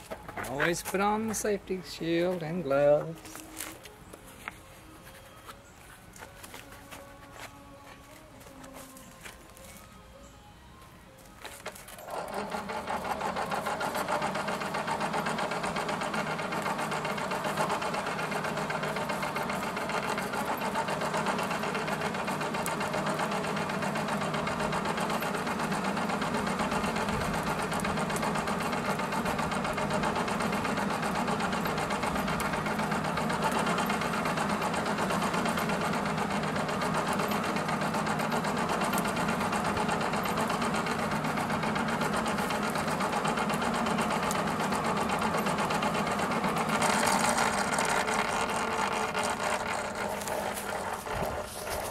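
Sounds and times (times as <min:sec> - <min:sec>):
small electric motor buzzing: 0:11.9 - 0:51.9.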